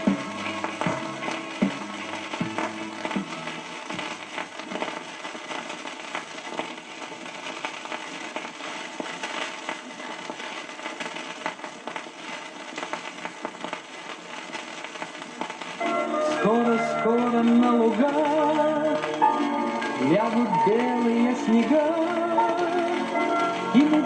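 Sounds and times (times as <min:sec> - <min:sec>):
song ending: 0:00.0 - 0:04.1, 0:15.8 - 0:24.0
vinyl crackles and pops: 0:00.0 - 0:24.0
vinyl record hiss: 0:00.0 - 0:24.0.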